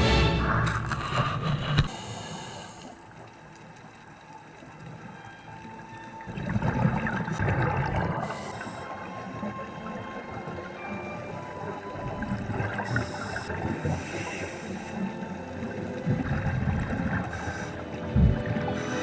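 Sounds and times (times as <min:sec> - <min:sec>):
bubbles gurgling: 0:06.2 - 0:10.8, 0:11.4 - 0:19.0.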